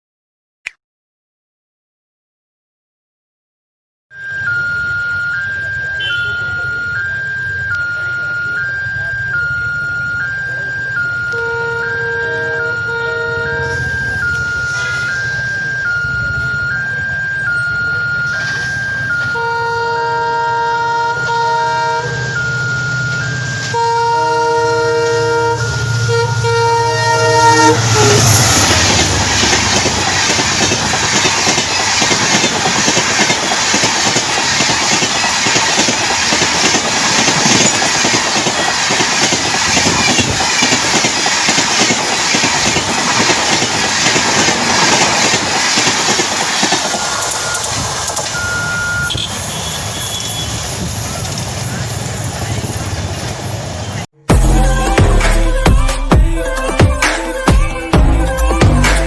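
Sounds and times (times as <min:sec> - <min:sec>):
train rushing past: 0:04.3 - 0:59.0
locomotive horn blasts: 0:05.9 - 0:06.9, 0:10.9 - 0:16.8, 0:18.2 - 0:31.2, 0:47.3 - 0:50.9
wheels clattering on rail joints: 0:28.5 - 0:54.0.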